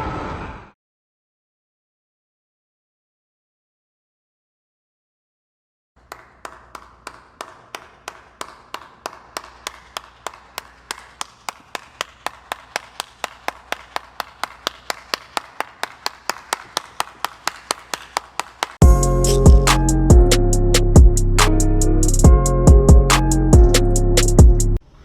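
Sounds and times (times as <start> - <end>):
rhythmic claps: 6.0 - 24.8.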